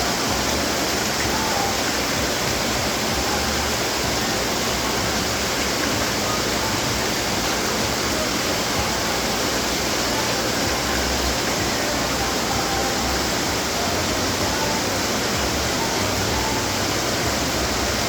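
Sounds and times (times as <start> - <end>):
fountain water splashing: 0.0 - 18.0.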